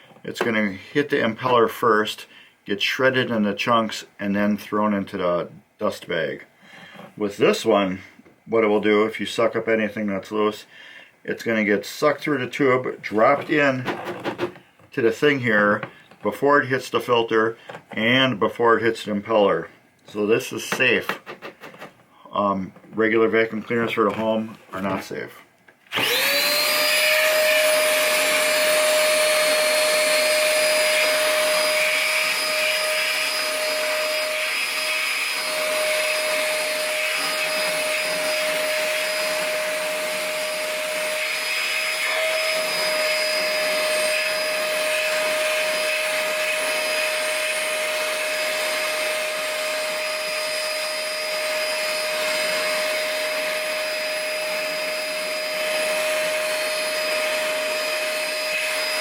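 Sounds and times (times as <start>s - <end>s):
shop vac running: 25.9s - 59.0s.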